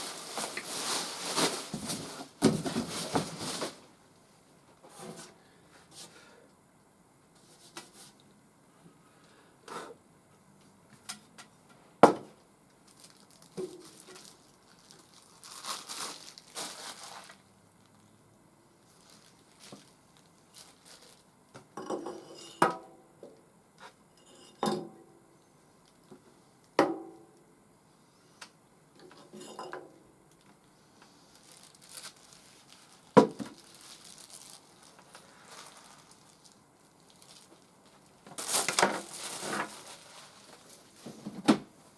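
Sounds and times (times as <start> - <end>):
packing material crinkling and tearing: 0.0 - 3.9, 12.8 - 18.2, 18.8 - 21.3, 31.2 - 41.1
knocks on packaging: 2.4 - 3.3.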